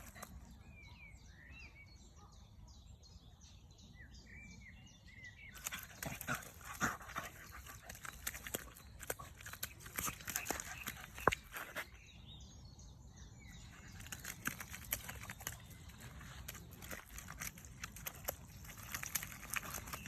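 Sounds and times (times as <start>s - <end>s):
puppy splashing in mud: 0.0s - 0.6s, 5.5s - 12.2s, 13.4s - 20.0s
puppy panting: 5.6s - 11.9s.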